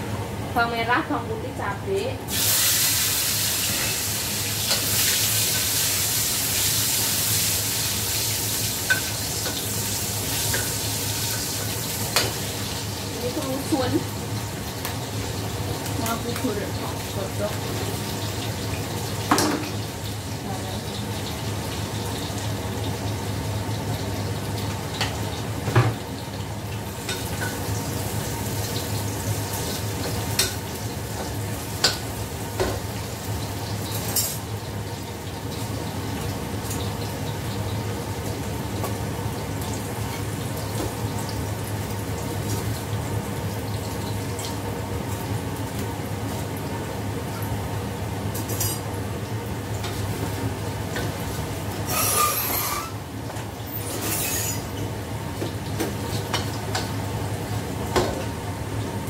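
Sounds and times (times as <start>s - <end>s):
food sizzling in a wok: 0.2s - 59.0s.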